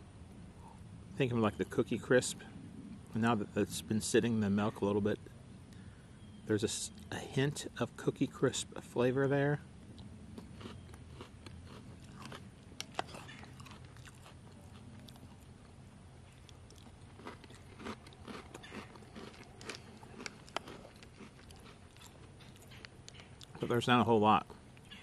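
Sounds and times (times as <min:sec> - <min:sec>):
person chewing cereal: 0:10.0 - 0:23.6.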